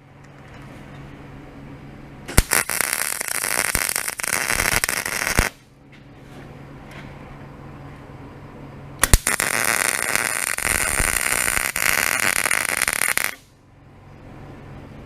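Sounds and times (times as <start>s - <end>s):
welding arc crackling: 2.3s - 5.6s, 9.0s - 13.5s.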